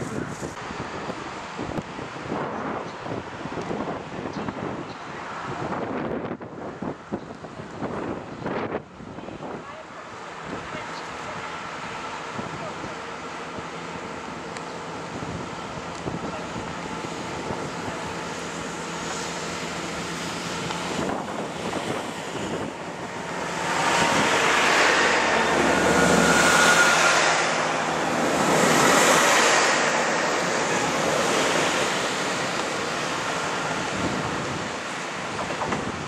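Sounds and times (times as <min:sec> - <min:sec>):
train wheels rushing on rail: 0:09.7 - 0:36.0.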